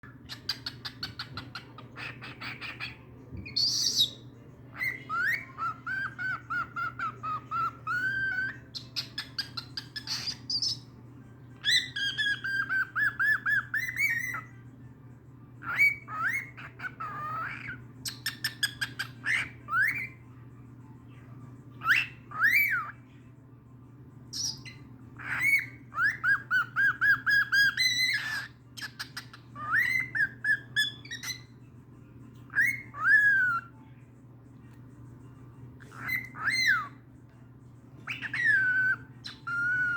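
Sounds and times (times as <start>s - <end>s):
steady low hum: 0.0s - 39.9s
cockatiel whistling and trilling: 0.2s - 10.9s, 11.6s - 14.5s, 15.6s - 20.2s, 21.8s - 23.0s, 24.3s - 31.5s, 32.5s - 33.7s, 35.8s - 37.0s, 38.0s - 39.9s.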